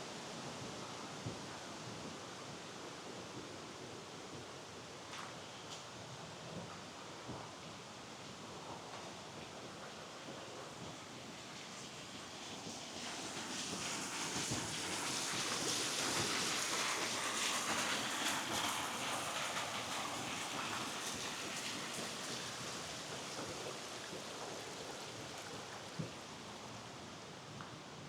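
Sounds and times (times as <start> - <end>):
stream water rushing: 18.4 - 27.0.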